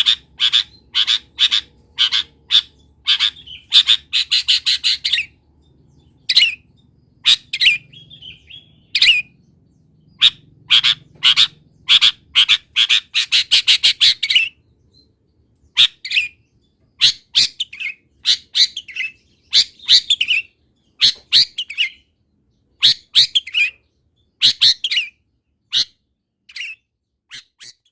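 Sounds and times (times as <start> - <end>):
shrike singing: 0.0 - 15.1.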